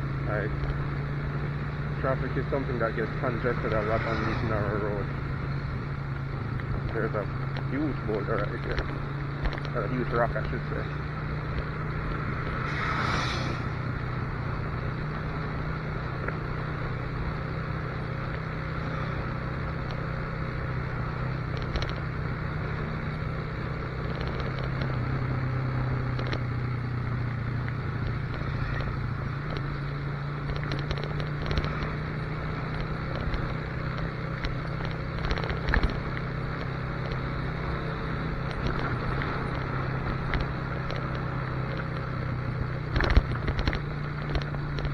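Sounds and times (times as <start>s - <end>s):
motorcycle engine cruising: 0.0s - 44.9s
brief hiss: 12.6s - 13.8s.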